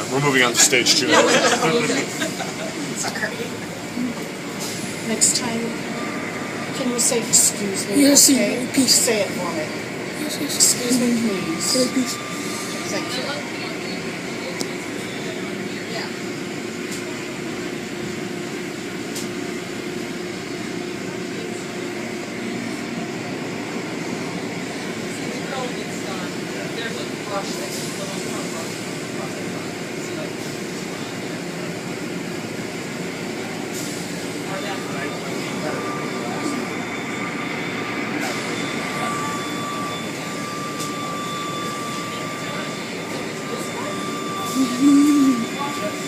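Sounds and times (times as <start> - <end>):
car wash machinery hiss and hum: 0.0 - 46.0
high whine: 34.5 - 46.0.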